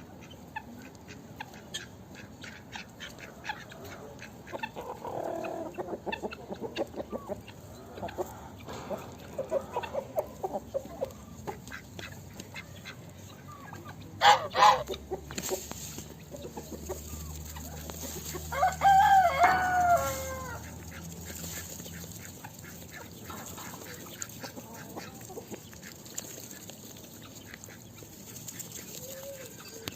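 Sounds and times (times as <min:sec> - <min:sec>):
faint clucking: 0:00.0 - 0:18.4
rooster crowing: 0:18.4 - 0:20.6.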